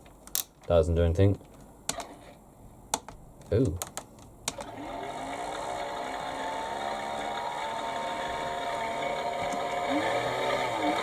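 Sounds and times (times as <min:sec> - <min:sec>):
toy motor whirring hum: 0:04.6 - 0:11.0.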